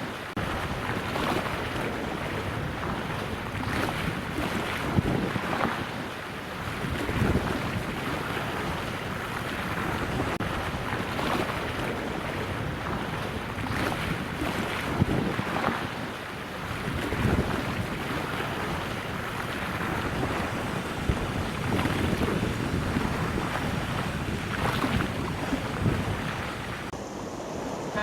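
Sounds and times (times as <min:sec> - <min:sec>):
water rushing: 0:00.0 - 0:28.0
wind buffeting microphone: 0:00.4 - 0:28.0.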